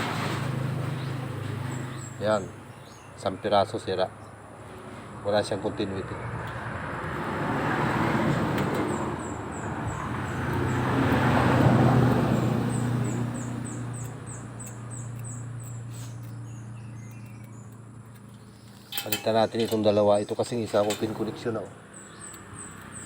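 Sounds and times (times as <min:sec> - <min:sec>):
road traffic passing: 0:00.0 - 0:23.0
high bird chirps: 0:12.3 - 0:19.4.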